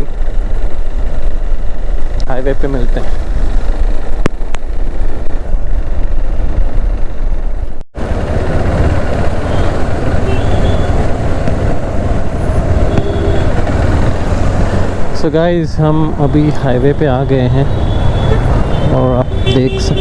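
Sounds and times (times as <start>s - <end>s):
wind noise: 0.0s - 15.2s
motorcycle road noise: 0.0s - 20.0s
traffic: 0.0s - 20.0s.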